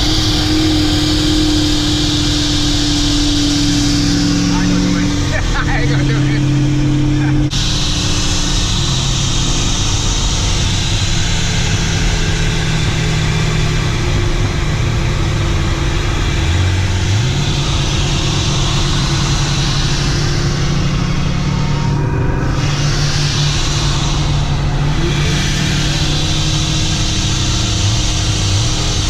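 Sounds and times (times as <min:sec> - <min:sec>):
car engine running: 0:00.0 - 0:29.0
road and wind noise: 0:00.0 - 0:29.0.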